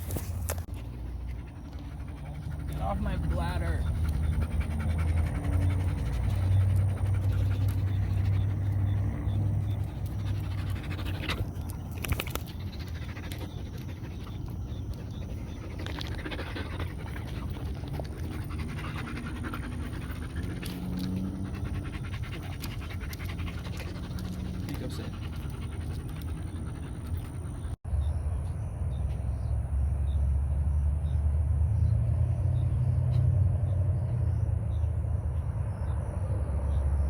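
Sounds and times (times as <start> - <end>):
dog panting: 0.7 - 27.8.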